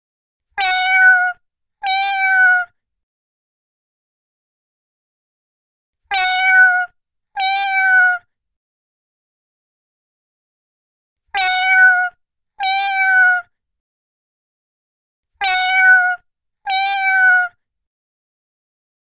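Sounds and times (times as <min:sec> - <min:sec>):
cat meowing: 0:00.6 - 0:02.8, 0:06.1 - 0:08.3, 0:11.4 - 0:13.5, 0:15.4 - 0:17.6.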